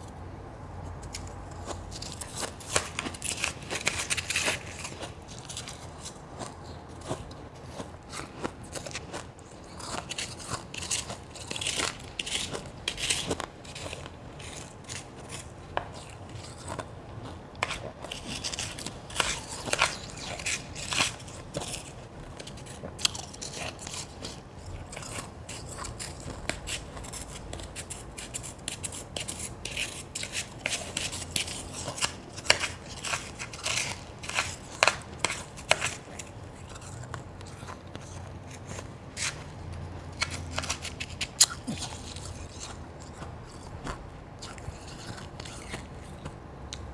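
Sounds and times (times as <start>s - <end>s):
person crunching ice: 1.0s - 46.4s.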